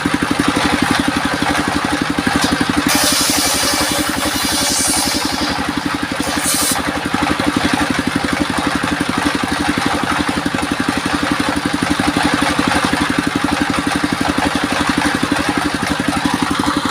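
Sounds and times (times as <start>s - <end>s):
engine chugging: 0.0s - 16.9s
short high hiss: 2.9s - 5.6s, 6.2s - 6.8s.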